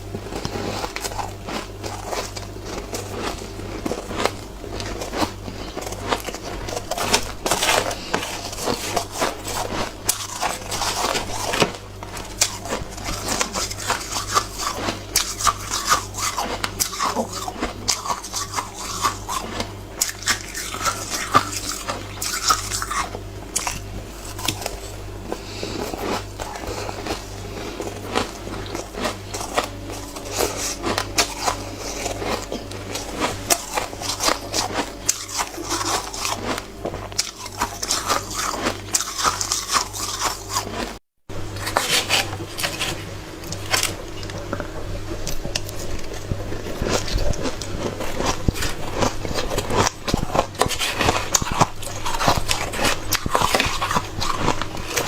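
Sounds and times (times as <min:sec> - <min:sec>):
low hum: 0:00.0 - 0:40.1
person crunching shaved ice: 0:00.1 - 0:41.0, 0:45.3 - 0:55.0.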